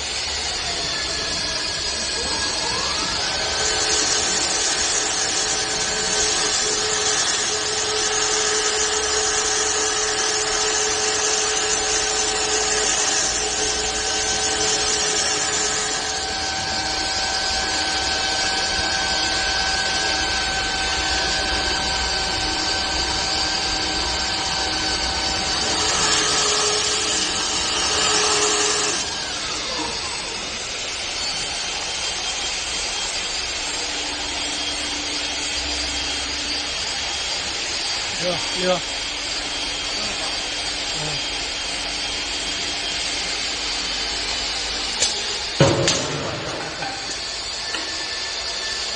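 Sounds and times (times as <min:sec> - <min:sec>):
motor whines: 0:00.0 - 0:48.9
hiss of tool cutting wood: 0:19.6 - 0:48.9.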